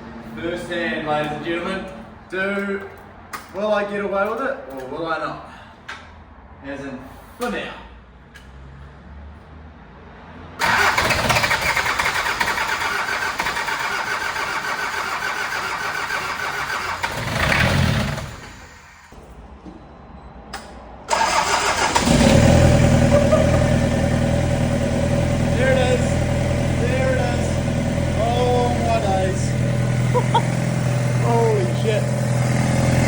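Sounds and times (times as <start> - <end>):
diesel engine cranking: 10.6 - 19.2, 21.0 - 33.0
diesel engine running: 10.6 - 19.2, 21.1 - 33.0.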